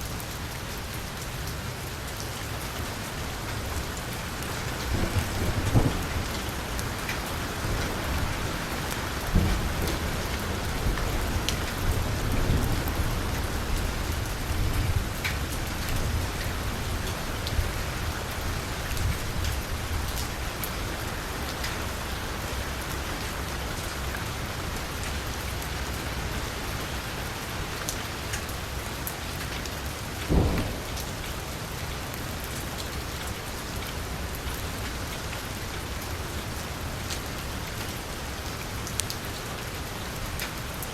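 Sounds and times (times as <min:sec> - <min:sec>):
heavy rain on a car: 0:00.0 - 0:40.9
loud thud: 0:30.3 - 0:31.1.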